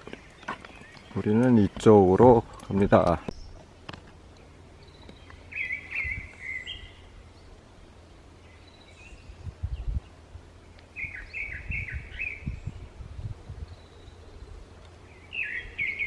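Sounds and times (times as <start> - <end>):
bird calling: 4.3 - 9.4, 10.6 - 12.9, 13.7 - 16.0.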